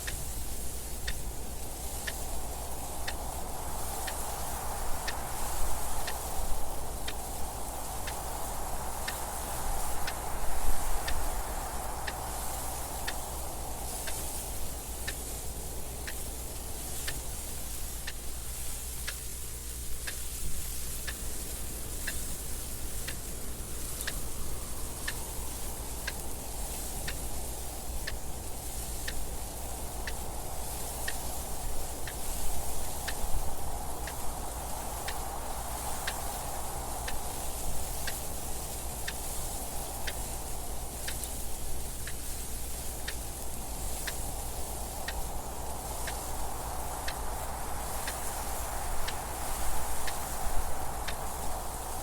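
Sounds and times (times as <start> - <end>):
clock ticking: 0.0 - 8.4, 9.0 - 18.3, 21.0 - 52.0
wind gusts: 0.0 - 52.0.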